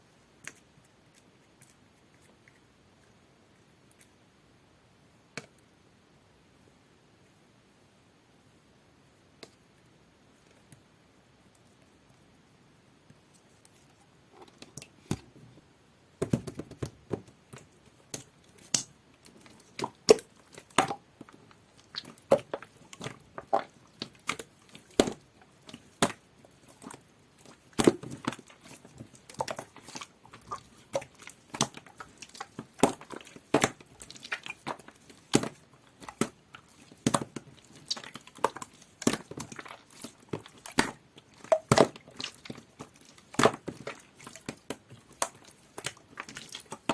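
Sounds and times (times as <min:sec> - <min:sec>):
slime popping and clicking: 0:17.5 - 0:19.0.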